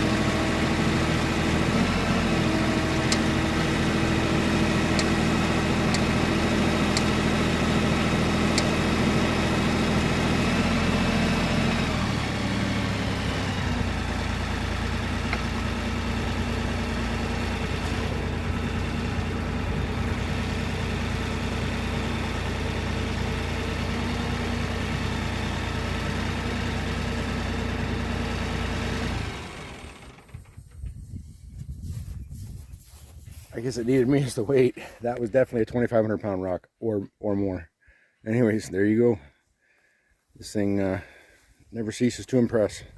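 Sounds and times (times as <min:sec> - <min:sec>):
tractor diesel engine running: 0:00.0 - 0:31.4.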